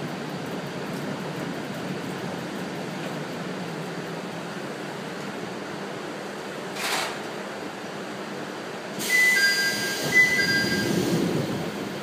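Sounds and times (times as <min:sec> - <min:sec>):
two-tone electronic chime: 0:09.2 - 0:10.9.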